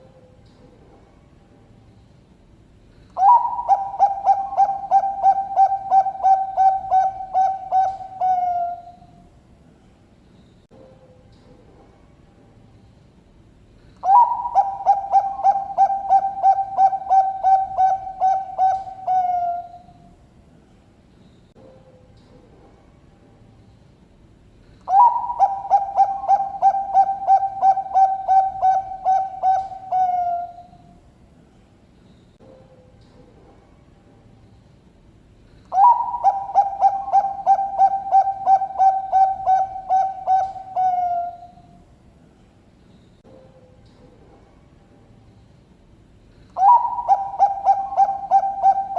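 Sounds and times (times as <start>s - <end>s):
dove cooing: 3.2s - 9.1s, 14.0s - 20.0s, 24.8s - 30.8s, 35.7s - 41.6s, 46.6s - 48.9s.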